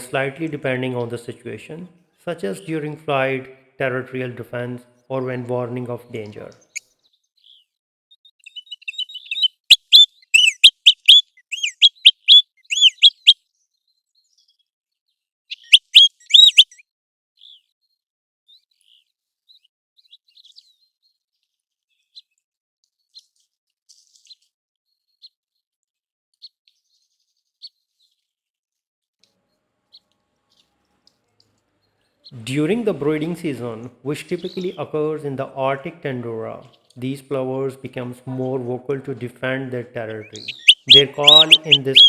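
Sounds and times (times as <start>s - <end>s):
plover whistled calls: 8.8s - 13.4s, 15.5s - 16.8s, 40.2s - 42.0s.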